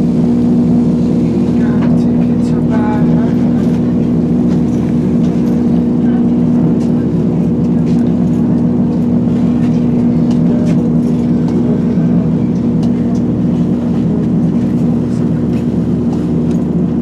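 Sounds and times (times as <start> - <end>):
train diesel engine humming: 0.0 - 17.0.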